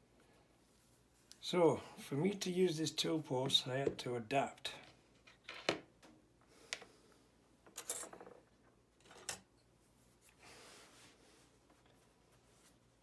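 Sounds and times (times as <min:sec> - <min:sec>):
metal parts clinking: 0:07.8 - 0:08.2.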